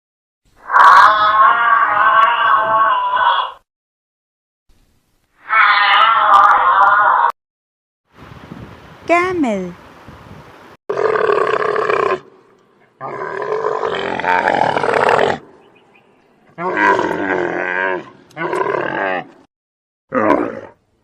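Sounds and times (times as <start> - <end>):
camel calling: 0.6 - 3.6, 5.4 - 7.3, 10.9 - 19.4.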